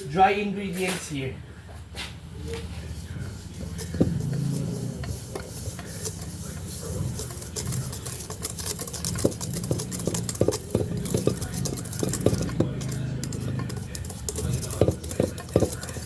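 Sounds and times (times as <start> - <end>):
steady low hum: 2.3 - 16.0
utensil tapping mixing bowl: 3.4 - 16.0.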